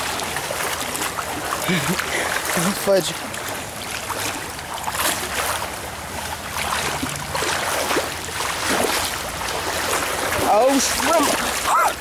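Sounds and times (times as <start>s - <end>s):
rushing creek current: 0.0s - 12.0s
water sloshing and splashing: 0.0s - 12.0s.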